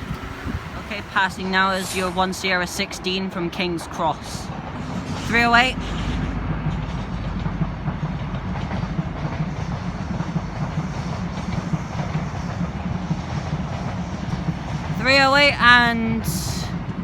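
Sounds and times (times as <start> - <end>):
train rumble: 0.0 - 17.0
wheels clattering over rail joints: 2.3 - 15.2.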